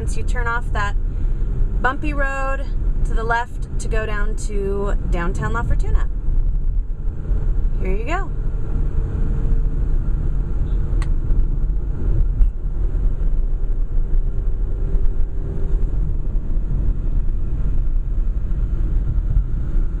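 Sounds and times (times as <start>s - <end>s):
engine and tyre rumble: 0.0s - 20.0s.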